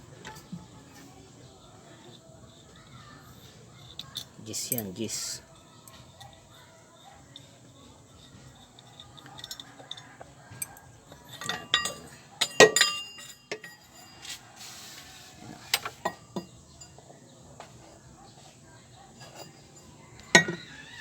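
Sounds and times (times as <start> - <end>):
metal tools clinking: 1.9 - 21.0.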